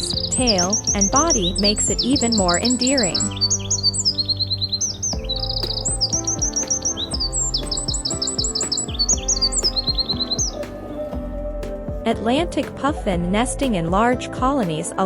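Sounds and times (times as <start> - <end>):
songbird trilling and chirping: 0.0 - 10.8
soft background music: 0.0 - 15.0.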